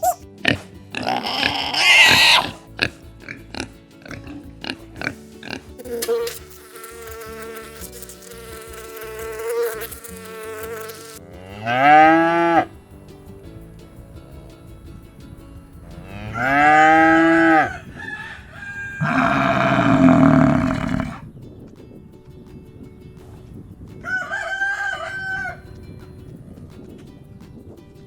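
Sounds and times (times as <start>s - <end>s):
animal squealing: 0.0s - 3.0s, 18.6s - 21.2s
cow mooing: 11.2s - 12.7s, 15.9s - 17.8s, 19.0s - 21.2s
long steady animal call: 16.0s - 21.2s.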